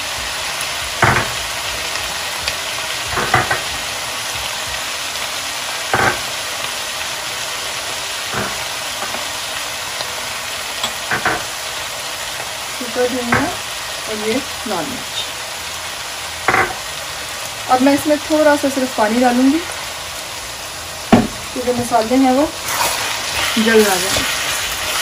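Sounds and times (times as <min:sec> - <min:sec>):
meat and tomatoes sizzling in a pan: 0:00.0 - 0:25.0
glass bowl knocks and clinks: 0:03.1 - 0:03.7, 0:06.0 - 0:06.2, 0:16.5 - 0:16.8.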